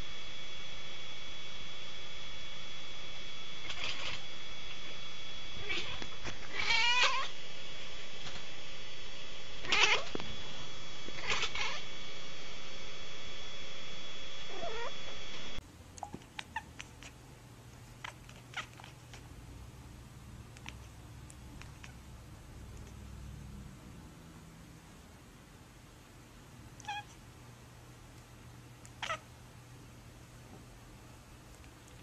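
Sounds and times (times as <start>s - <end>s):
steady hiss: 0.0s - 15.6s
cat meowing: 3.6s - 4.2s, 5.6s - 7.3s, 9.6s - 10.2s, 11.2s - 11.8s, 14.5s - 15.0s, 21.6s - 22.0s, 26.8s - 27.2s, 28.9s - 29.2s.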